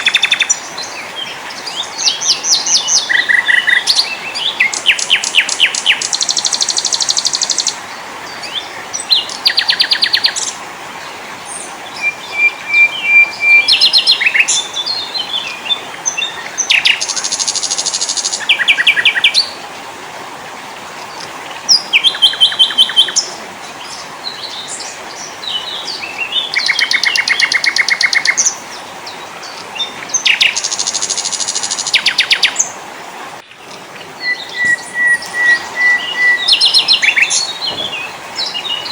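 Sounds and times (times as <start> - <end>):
songbirds trilling: 0.0 - 19.6, 20.7 - 38.9
faint steady hiss: 0.0 - 38.9
bird whistled note: 34.2 - 37.8.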